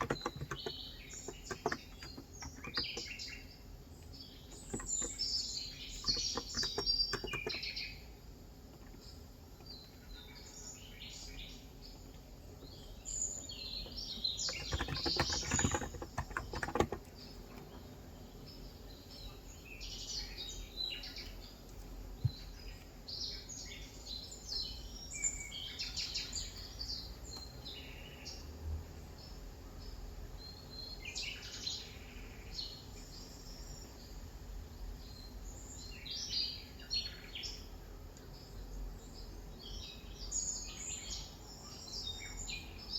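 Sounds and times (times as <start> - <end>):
keyboard typing: 0.0 - 3.2, 6.0 - 7.6, 14.5 - 17.1
small birds chirping: 0.0 - 42.9.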